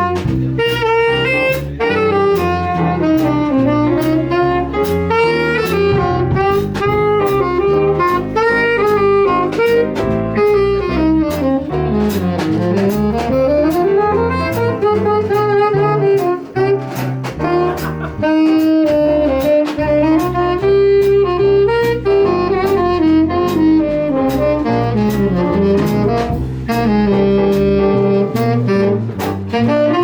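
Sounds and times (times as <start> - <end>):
saxophone melody: 0.0 - 30.0
walking bass line: 0.0 - 30.0.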